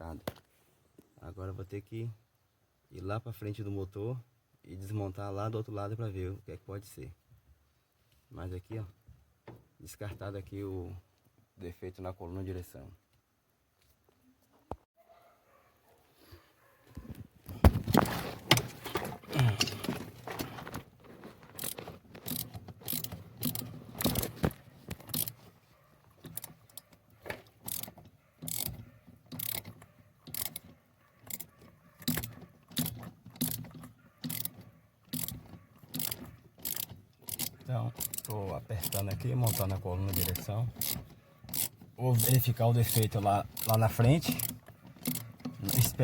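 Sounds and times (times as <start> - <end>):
tool and metal parts clattering: 17.4 - 25.5, 26.1 - 46.0
ratchet wrench clicking: 21.6 - 25.4, 26.2 - 26.8, 27.6 - 46.0.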